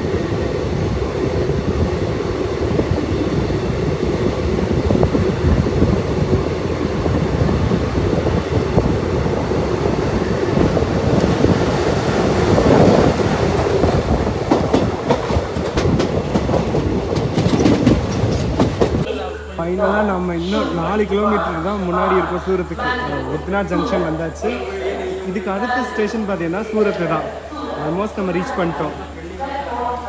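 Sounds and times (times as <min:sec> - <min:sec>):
train wheels rumbling on rail: 0:00.0 - 0:19.1.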